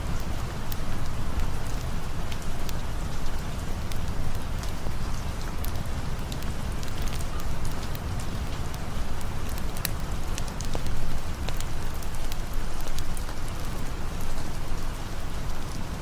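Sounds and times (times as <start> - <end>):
steady rain: 0.0 - 16.0
campfire crackling and popping: 0.2 - 14.8.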